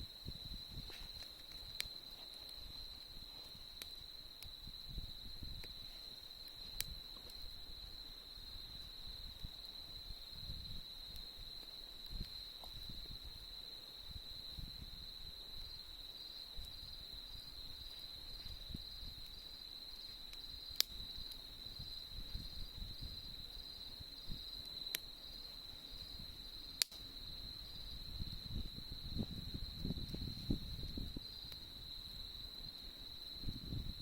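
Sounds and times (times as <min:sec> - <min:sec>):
campfire rustle: 0:00.0 - 0:34.0
fire popping: 0:00.0 - 0:34.0
insects trilling: 0:00.0 - 0:34.0.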